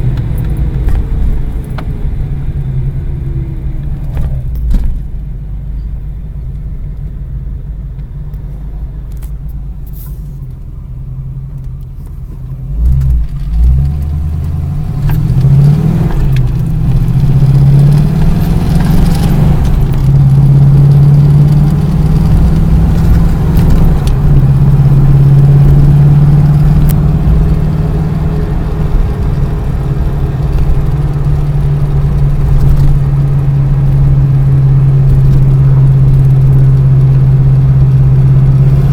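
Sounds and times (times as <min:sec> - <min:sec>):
low thumps: 0:00.0 - 0:02.8
vehicle engine rumbling and revving: 0:00.0 - 0:38.9.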